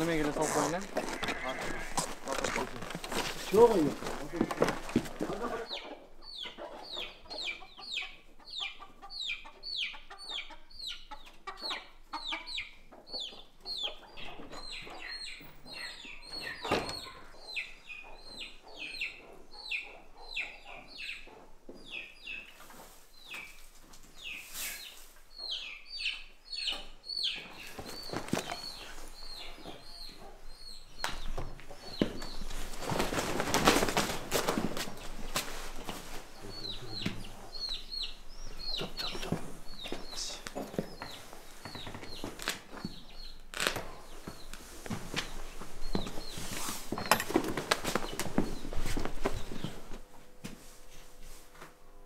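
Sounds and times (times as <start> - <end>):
loud rustling: 0.0 - 5.6, 32.1 - 36.4.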